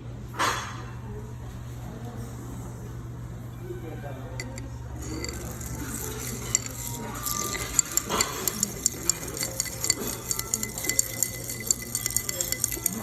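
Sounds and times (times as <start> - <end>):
spoon and ice clinking glass: 4.4 - 13.0.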